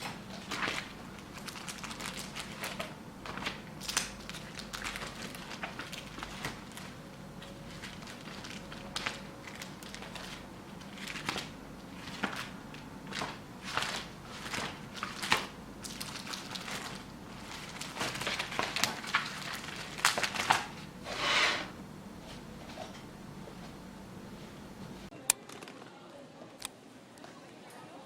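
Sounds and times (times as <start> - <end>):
crinkling handling noise: 0.0 - 21.0.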